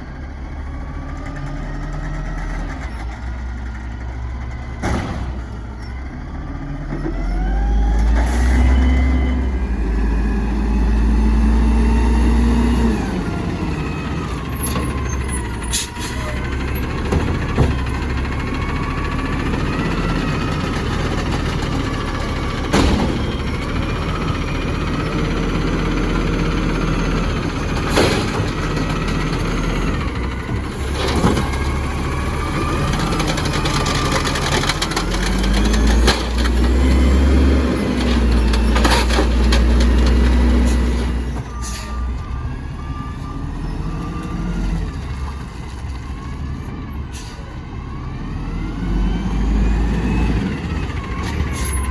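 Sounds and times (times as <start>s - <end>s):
garbage truck engine running: 0.0s - 51.9s.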